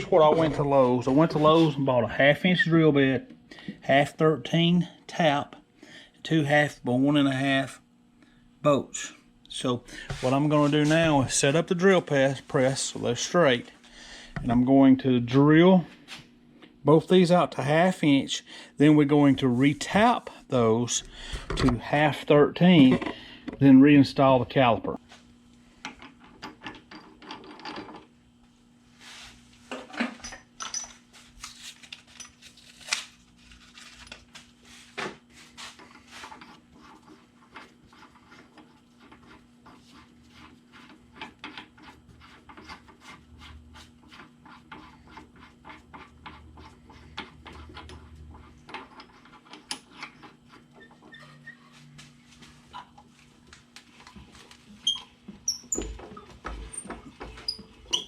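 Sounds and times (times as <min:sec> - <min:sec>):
faint steady hum: 0:00.0 - 0:58.0
tools and metal parts clinking: 0:30.0 - 0:31.0, 0:32.1 - 0:32.4.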